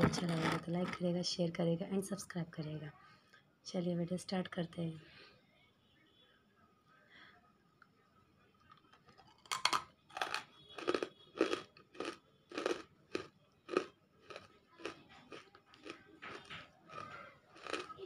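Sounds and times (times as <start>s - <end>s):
crunchy biting and chewing: 8.7s - 18.0s.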